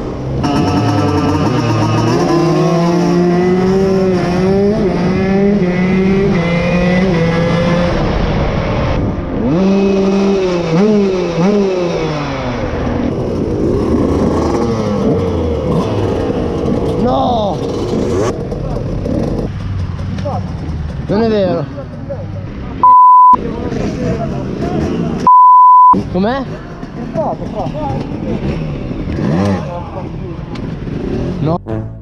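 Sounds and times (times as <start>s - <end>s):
motocross engine revving: 0.1s - 8.5s, 9.4s - 21.6s, 27.1s - 32.0s.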